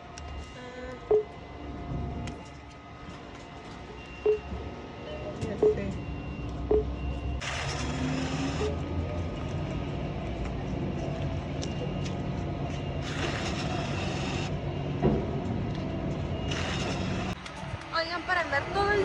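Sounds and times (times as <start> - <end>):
bus engine running: 1.4 - 19.0
pneumatic air hiss: 13.0 - 14.5.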